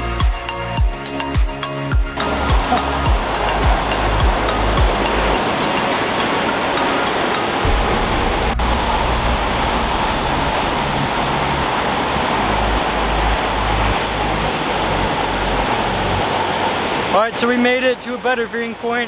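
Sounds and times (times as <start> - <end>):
waterfall roaring: 1.0 - 19.0
wind rumbling on microphone: 2.2 - 17.2.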